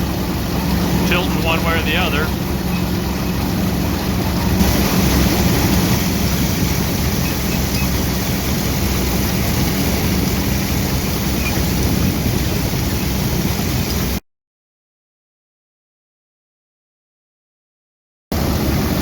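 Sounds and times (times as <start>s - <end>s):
constant rushing noise: 0.0s - 14.2s
tractor engine droning: 0.0s - 14.2s, 18.4s - 19.0s.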